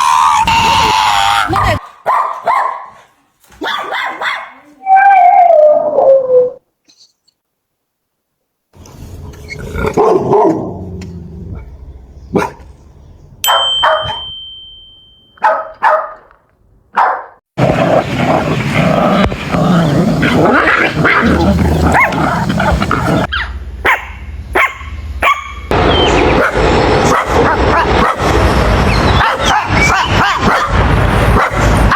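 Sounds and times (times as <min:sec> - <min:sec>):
dogs barking and yipping: 0:01.6 - 0:04.6, 0:12.3 - 0:12.7, 0:15.4 - 0:16.2, 0:17.0 - 0:17.3, 0:20.2 - 0:31.9.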